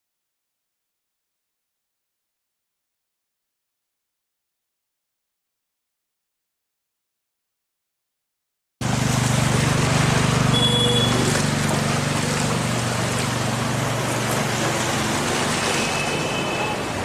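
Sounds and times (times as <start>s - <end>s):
vehicle engine running: 8.8s - 15.8s
rush of moving water: 8.8s - 17.0s
short high tone: 10.5s - 11.4s.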